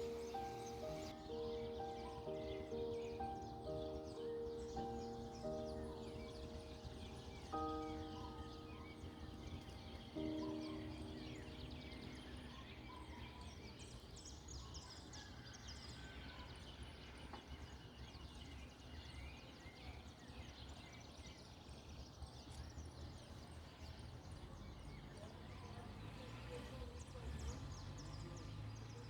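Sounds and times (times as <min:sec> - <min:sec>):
piano chord: 0:00.0 - 0:14.5
small birds chirping: 0:00.0 - 0:29.0.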